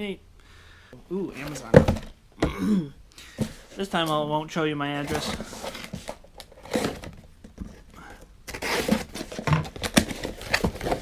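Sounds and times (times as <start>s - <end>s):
packaging rustling and tearing: 8.5s - 11.0s.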